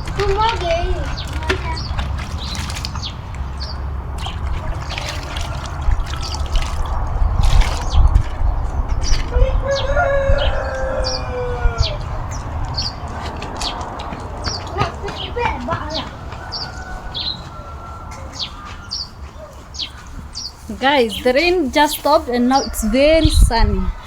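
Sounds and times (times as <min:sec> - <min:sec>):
rooster crowing: 0:05.2 - 0:06.9, 0:09.3 - 0:12.4, 0:15.8 - 0:19.7.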